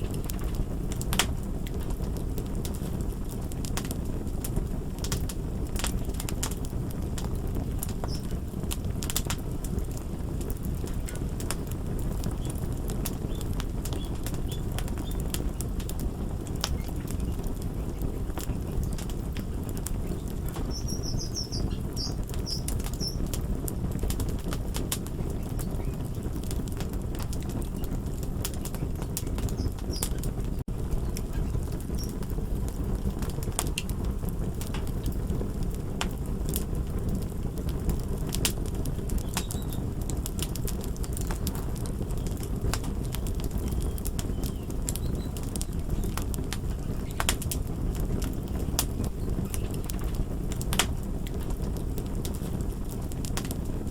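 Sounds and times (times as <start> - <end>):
fire crackling and popping: 0.0 - 53.9
faint bird chirps: 20.0 - 23.2, 39.2 - 39.8, 43.7 - 46.1.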